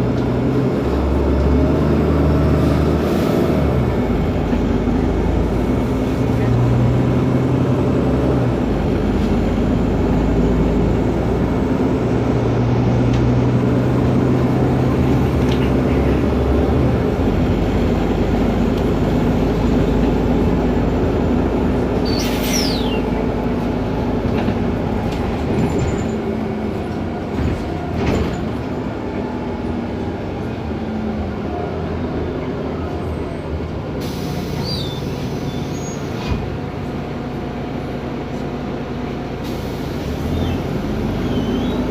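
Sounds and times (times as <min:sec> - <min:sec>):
bus diesel engine droning: 0:00.0 - 0:41.9
brief high squeal: 0:22.0 - 0:23.0, 0:34.6 - 0:36.2.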